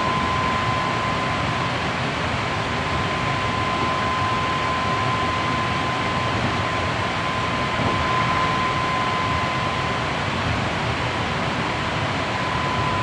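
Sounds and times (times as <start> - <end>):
steady high tone: 0.0 - 1.9, 2.8 - 10.3, 12.2 - 13.0.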